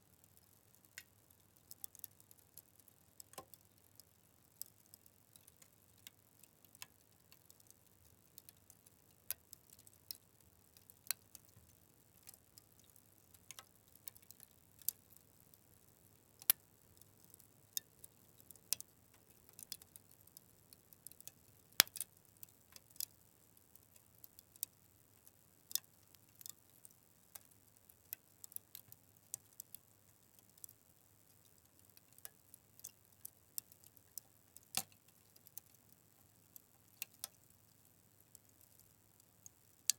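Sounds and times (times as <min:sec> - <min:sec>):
fire crackling and popping: 0:00.2 - 0:35.8, 0:36.4 - 0:38.8.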